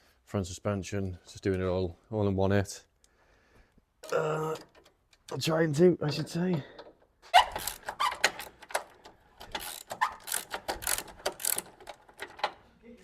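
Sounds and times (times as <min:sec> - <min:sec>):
ratchet wrench clicking: 0:07.4 - 0:12.4.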